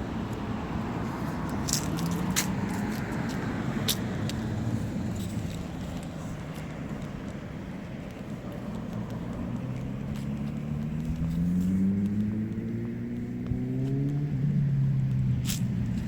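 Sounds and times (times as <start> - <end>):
vehicle engine accelerating: 8.6 - 16.0.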